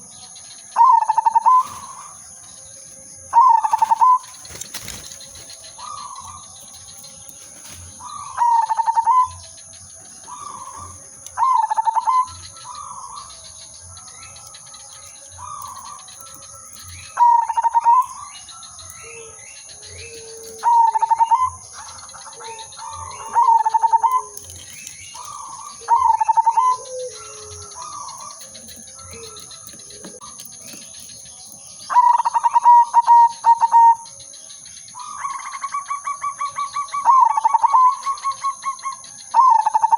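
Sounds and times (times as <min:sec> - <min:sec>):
dove staccato cooing: 0:00.7 - 0:02.2, 0:03.3 - 0:34.2, 0:35.0 - 0:39.9
faint dove coos: 0:20.0 - 0:30.8.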